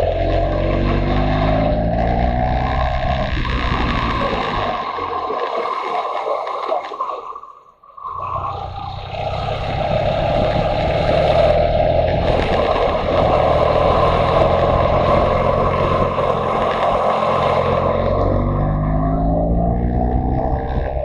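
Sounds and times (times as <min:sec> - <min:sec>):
motorcycle engine running: 0:00.0 - 0:04.8, 0:08.5 - 0:21.0
wind noise on microphone: 0:00.0 - 0:05.2, 0:08.6 - 0:21.0.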